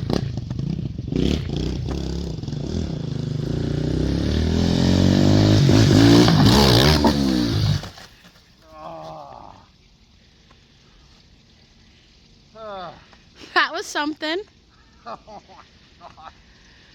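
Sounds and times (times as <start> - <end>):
motorbike engine accelerating: 0.0 - 8.0.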